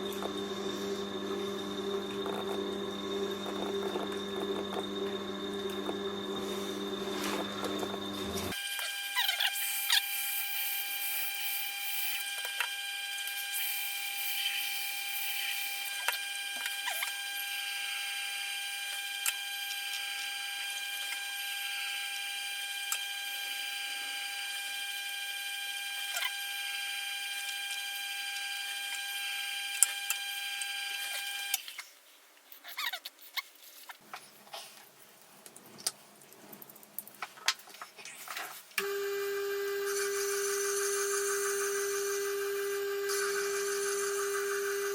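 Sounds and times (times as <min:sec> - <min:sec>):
knife-sharpening machine whine: 0:00.0 - 0:31.6, 0:38.8 - 0:44.9
machine with lower whine: 0:00.0 - 0:31.6, 0:38.8 - 0:44.9.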